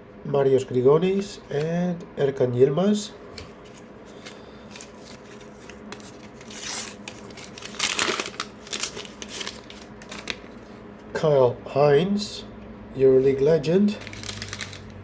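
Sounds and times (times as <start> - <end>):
wrapper tearing and crinkling: 4.7 - 10.6, 14.0 - 15.0.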